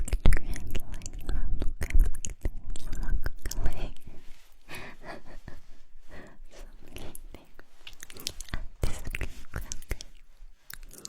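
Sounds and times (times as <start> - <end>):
wet lip and tongue clicks: 0.0 - 4.1, 6.8 - 11.0
breathy whisper-like noise: 2.8 - 11.0.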